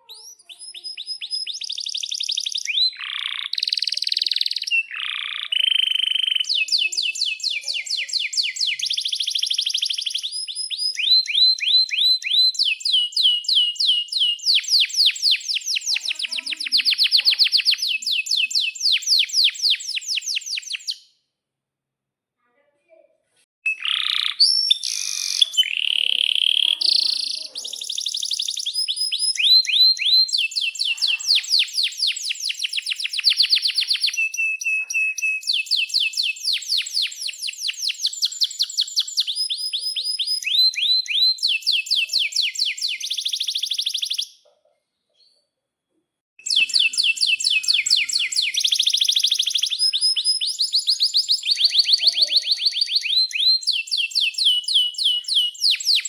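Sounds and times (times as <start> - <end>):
canary singing trills: 0.0 - 21.1, 23.7 - 44.5, 46.4 - 56.0.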